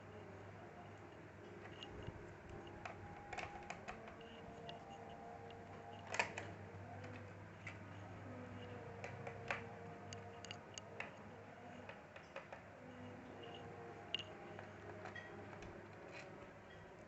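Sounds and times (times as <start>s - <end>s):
faint steady hum: 0.0s - 17.0s
screwdriver clicking on plastic: 8.6s - 12.6s.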